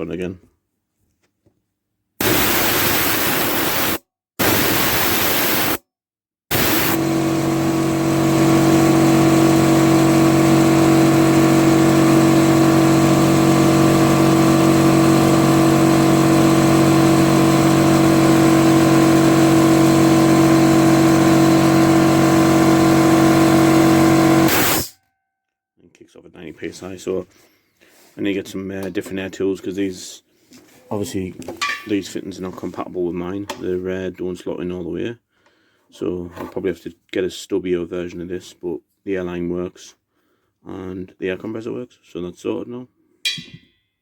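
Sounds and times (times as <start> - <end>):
air compressor running: 2.2 - 5.8, 6.5 - 24.9
compressed air hissing: 2.2 - 5.8, 6.5 - 7.0, 24.5 - 24.9.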